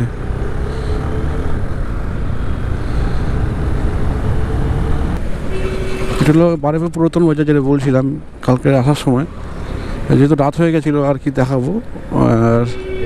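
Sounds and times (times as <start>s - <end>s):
motorcycle running: 0.0s - 6.6s.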